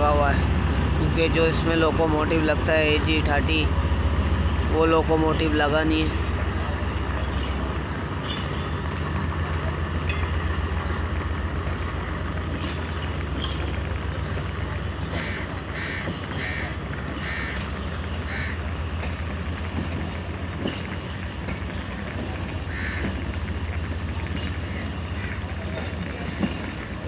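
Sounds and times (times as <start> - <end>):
train coaches rumbling past: 0.0 - 27.0
crow cawing: 22.7 - 23.0.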